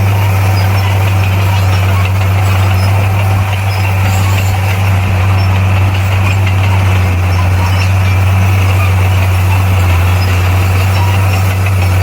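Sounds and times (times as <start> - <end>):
bulldozer diesel engine drone: 0.0 - 12.0.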